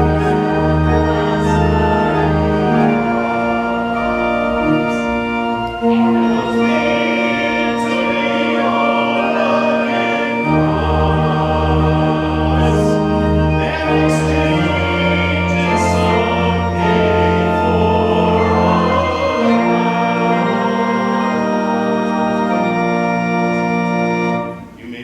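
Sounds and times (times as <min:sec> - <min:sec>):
choir singing a hymn: 0:00.0 - 0:25.0
organ chords: 0:00.0 - 0:25.0.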